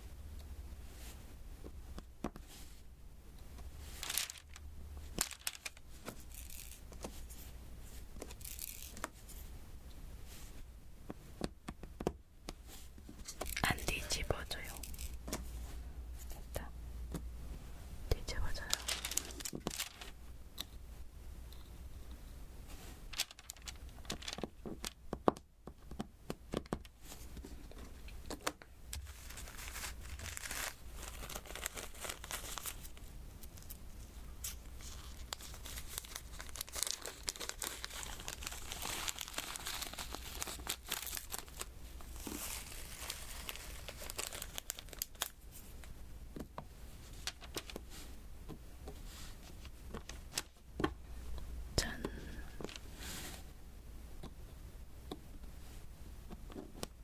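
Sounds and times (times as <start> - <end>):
dry rustling: 18.6 - 20.2, 28.9 - 33.0.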